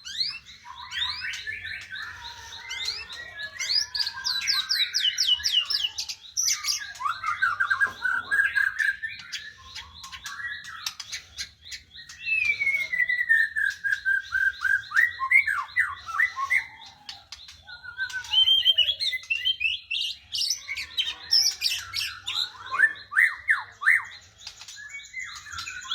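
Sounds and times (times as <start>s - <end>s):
songbird singing varied song: 0.0s - 25.9s.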